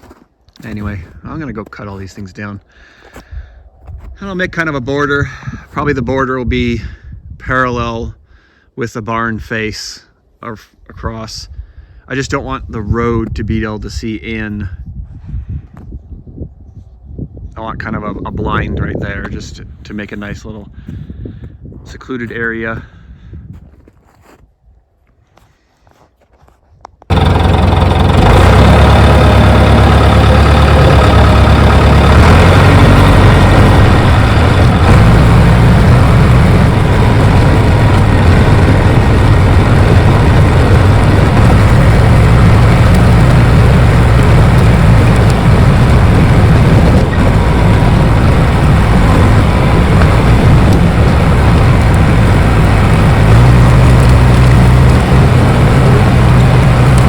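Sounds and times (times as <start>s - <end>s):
bulldozer diesel engine running: 27.1s - 57.0s.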